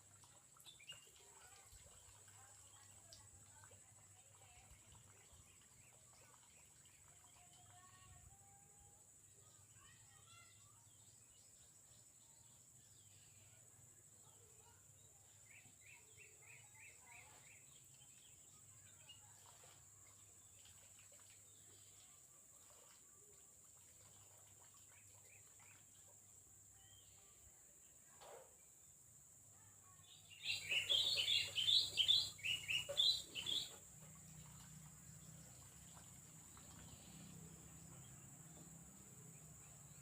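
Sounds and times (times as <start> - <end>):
bird chirps: 29.8 - 40.0.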